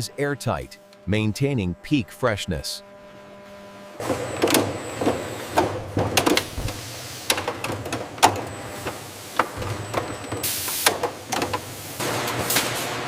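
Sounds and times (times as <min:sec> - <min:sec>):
steady low hum: 0:00.0 - 0:12.2
machinery clattering: 0:04.0 - 0:11.7.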